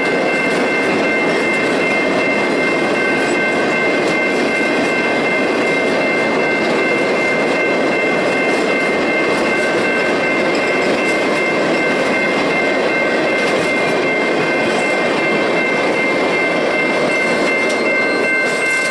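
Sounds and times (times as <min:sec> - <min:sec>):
freight train rolling on rails: 0:00.0 - 0:18.9
high ringing tones: 0:00.0 - 0:18.9.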